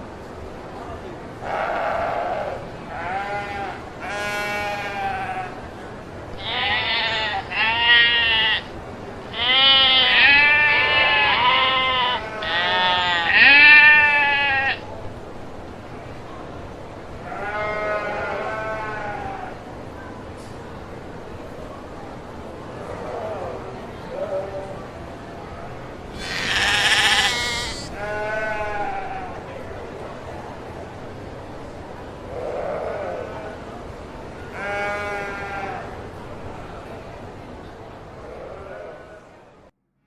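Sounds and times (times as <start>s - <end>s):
sheep bleating: 1.5s - 5.6s, 9.3s - 14.8s, 26.1s - 29.3s, 34.6s - 35.8s.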